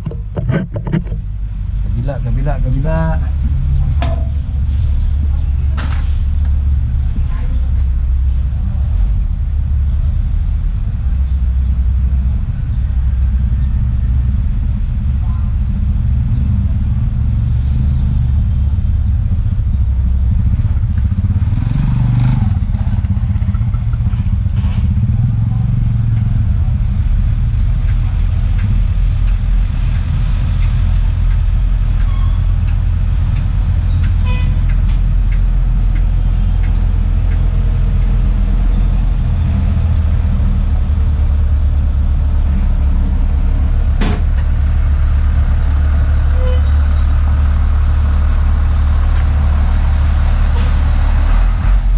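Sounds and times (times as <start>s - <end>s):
faint metallic clicks and knocks: 0.0s - 1.3s
heavy engine idling: 0.0s - 51.9s.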